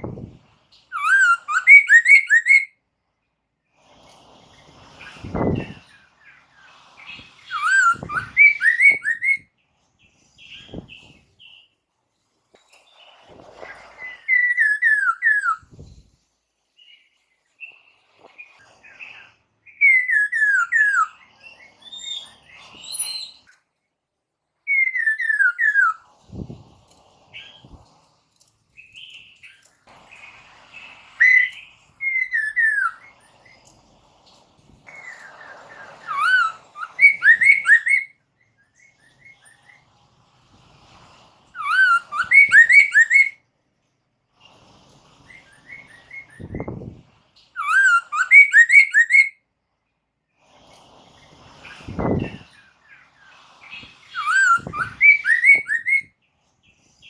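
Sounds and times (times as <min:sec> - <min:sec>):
bird singing sliding whistles: 0:00.1 - 0:02.7, 0:07.0 - 0:09.5, 0:13.0 - 0:16.0, 0:17.6 - 0:23.6, 0:24.7 - 0:26.7, 0:28.8 - 0:33.7, 0:34.9 - 0:39.9, 0:41.6 - 0:43.4, 0:45.2 - 0:49.4, 0:51.6 - 0:56.1.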